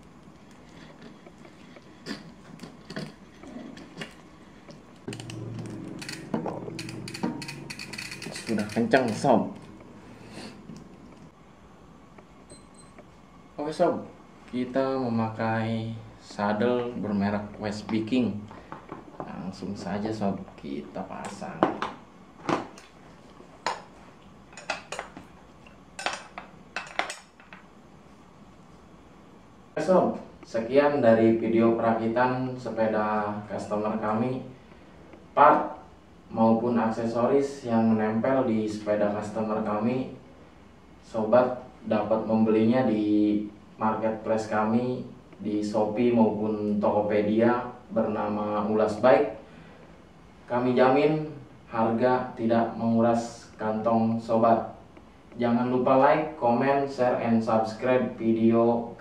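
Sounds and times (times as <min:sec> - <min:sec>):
steady low hum: 0:00.0 - 0:59.0
metallic clicks and knocks: 0:05.1 - 0:09.9.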